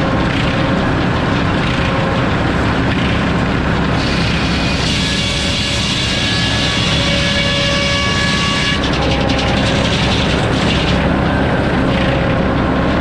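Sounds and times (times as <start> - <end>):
saw high rasp: 4.0 - 11.1
circular saw whining: 4.0 - 12.8.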